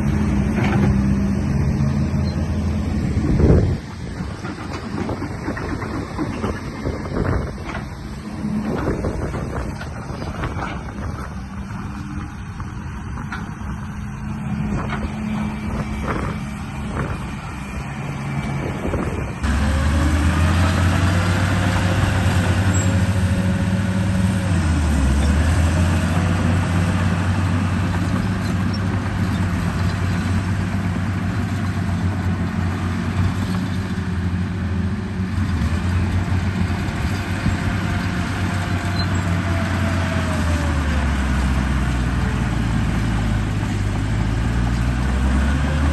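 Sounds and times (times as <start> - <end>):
low engine drone: 0.0 - 29.6.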